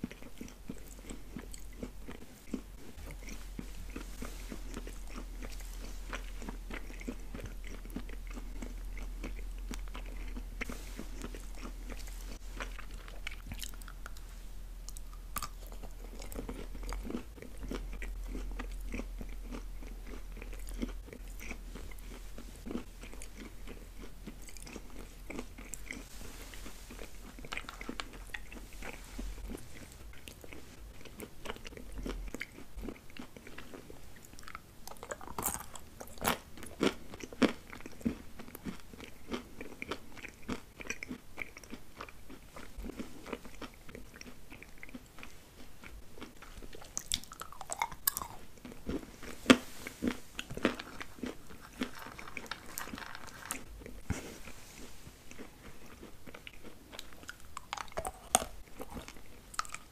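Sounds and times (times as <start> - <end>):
moist mouth sounds: 0.0 - 33.0
chewing and biting sweets: 0.0 - 59.9.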